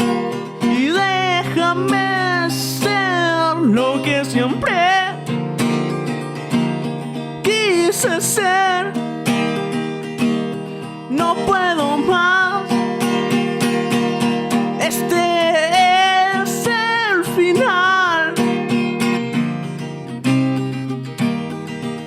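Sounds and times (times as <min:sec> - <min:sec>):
person singing wordless melody: 0:00.0 - 0:05.4, 0:07.2 - 0:09.1, 0:11.0 - 0:13.0, 0:14.7 - 0:18.6
acoustic guitar strumming: 0:00.0 - 0:22.0.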